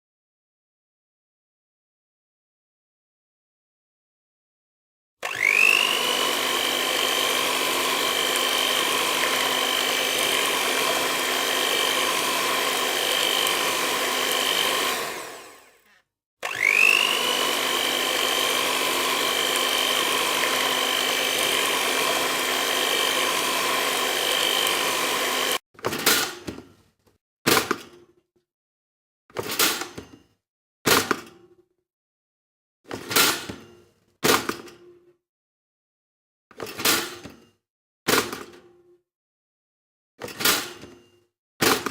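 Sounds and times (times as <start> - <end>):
blender motor whining: 5.2 - 25.6.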